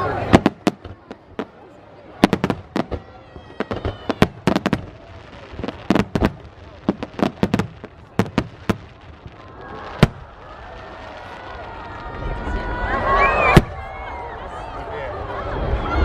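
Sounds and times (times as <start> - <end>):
fireworks bursting with sharp bangs: 0.0 - 12.5, 13.4 - 13.9
crowd voices: 0.0 - 16.0.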